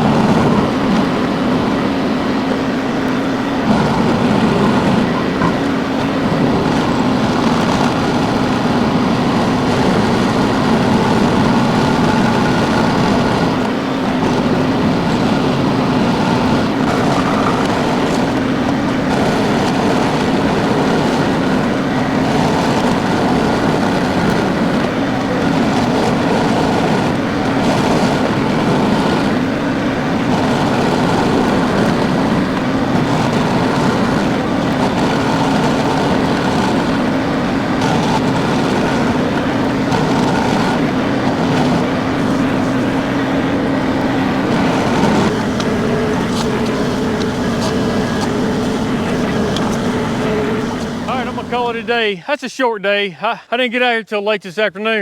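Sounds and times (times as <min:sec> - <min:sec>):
tractor engine running: 0:00.0 - 0:52.6.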